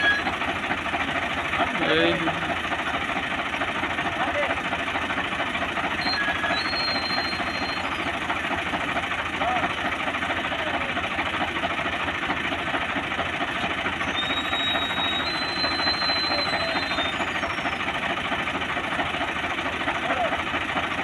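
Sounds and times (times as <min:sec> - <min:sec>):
tractor diesel engine chugging: 0:00.0 - 0:21.0.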